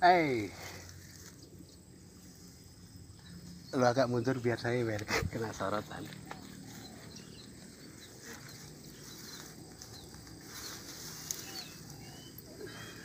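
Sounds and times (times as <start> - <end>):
high bird chirps: 6.3 - 13.0.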